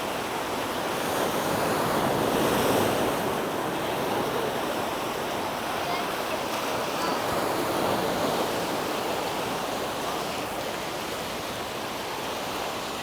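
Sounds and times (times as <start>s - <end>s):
small waves washing on sand: 0.0s - 13.0s.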